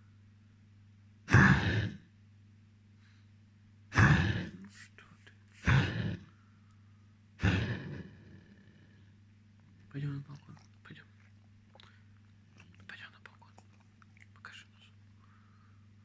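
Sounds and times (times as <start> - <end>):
dog coughing: 1.3 - 2.0, 3.9 - 4.8, 5.6 - 6.3, 7.4 - 8.8.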